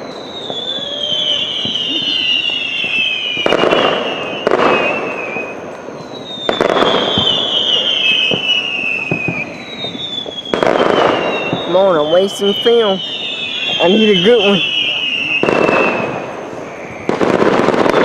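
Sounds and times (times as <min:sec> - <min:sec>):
fireworks bangs: 0:00.0 - 0:18.0
fireworks whistling: 0:00.0 - 0:18.0.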